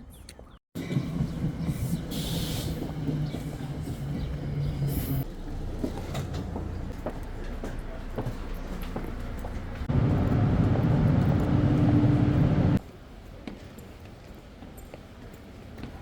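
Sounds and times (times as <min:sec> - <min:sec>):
train rumbling: 0:00.8 - 0:12.8
low hum: 0:09.9 - 0:12.8.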